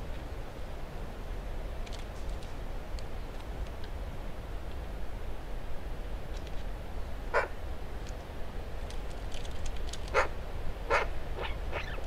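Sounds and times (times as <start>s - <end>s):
harsh bird calls: 10.9s - 12.0s.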